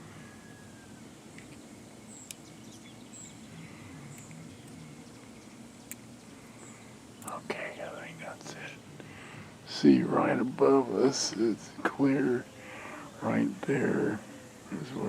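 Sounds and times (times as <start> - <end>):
low background hum: 0.0 - 15.0
sharp clicks: 7.2 - 7.4.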